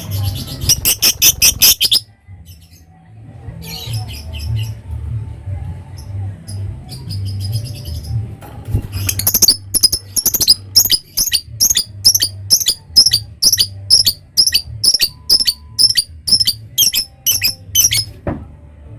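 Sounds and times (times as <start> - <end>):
lovebird shrill calls: 0.7 - 2.0, 9.1 - 18.1.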